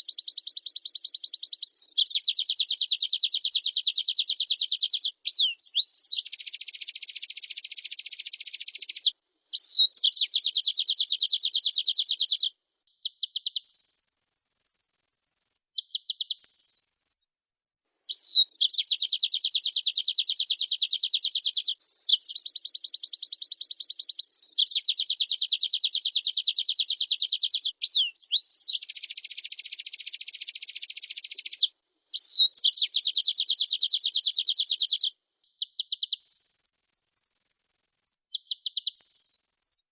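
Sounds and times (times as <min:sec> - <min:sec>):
bird singing trills and whistles: 0:00.0 - 0:17.2, 0:18.1 - 0:39.9.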